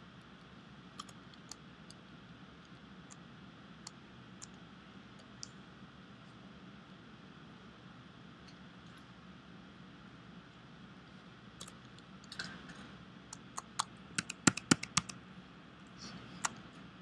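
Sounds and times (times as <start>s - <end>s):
keyboard key clicks: 13.6s - 15.2s.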